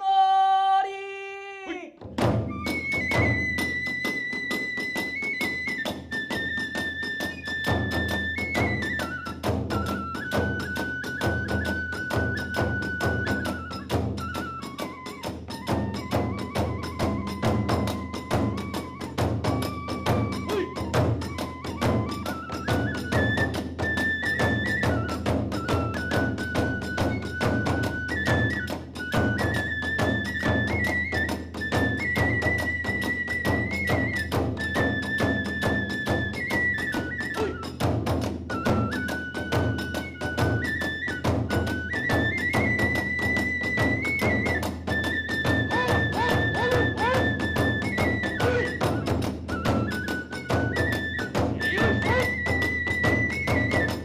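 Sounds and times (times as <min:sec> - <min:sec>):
fast drum strokes: 0:02.0 - 0:10.7, 0:42.4 - 0:54.0
bamboo flute long notes: 0:02.3 - 0:54.0
rapid drum strokes: 0:45.7 - 0:47.4.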